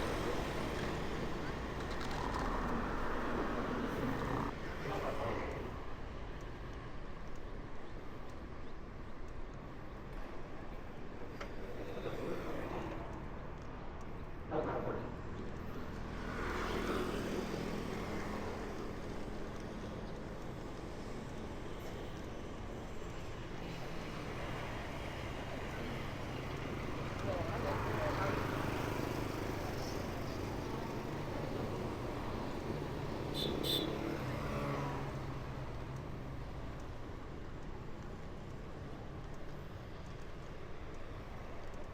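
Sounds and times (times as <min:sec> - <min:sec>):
motor vehicles passing: 0:00.0 - 0:04.8, 0:14.5 - 0:21.3, 0:23.8 - 0:38.6.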